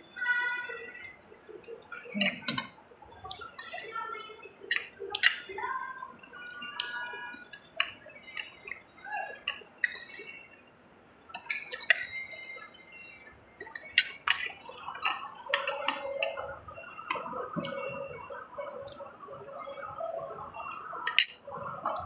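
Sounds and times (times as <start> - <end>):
cutlery clinking on plates: 11.3 - 12.8.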